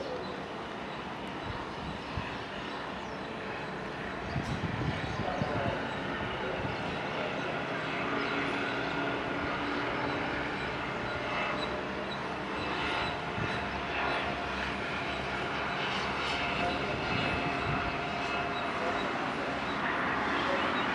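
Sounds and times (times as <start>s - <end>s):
jet landing engine rush: 0.0s - 20.9s.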